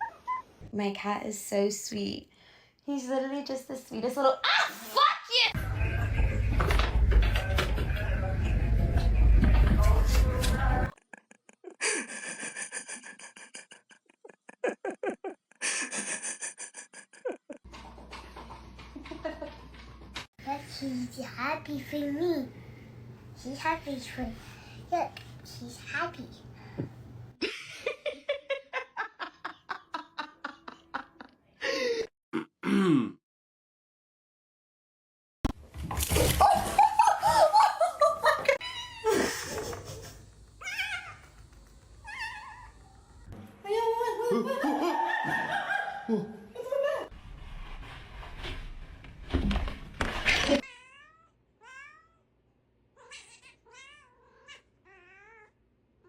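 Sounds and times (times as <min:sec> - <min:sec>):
person laughing: 0:10.9 - 0:17.7, 0:27.4 - 0:32.0, 0:36.4 - 0:40.3, 0:43.8 - 0:47.1.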